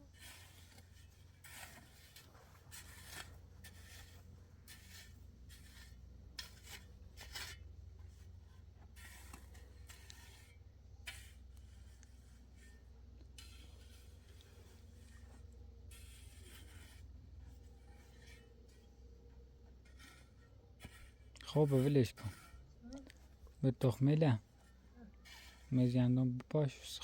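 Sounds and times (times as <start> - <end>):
scraping and rubbing strokes: 0.0 - 27.0.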